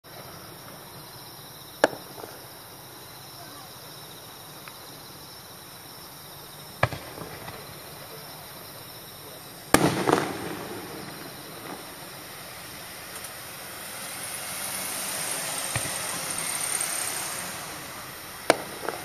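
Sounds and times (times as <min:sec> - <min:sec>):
firework hiss: 0:00.1 - 0:19.0
faint firework pop: 0:01.8 - 0:02.4
firework shell bang: 0:09.7 - 0:11.8, 0:15.4 - 0:16.5, 0:17.3 - 0:19.0.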